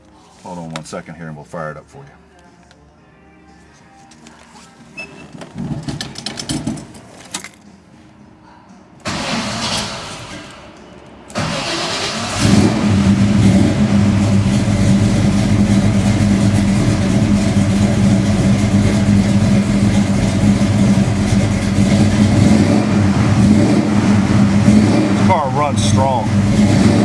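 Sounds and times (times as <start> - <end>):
car engine cranking: 9.0 - 10.7, 11.3 - 27.0
car engine idling rumble: 11.6 - 27.0.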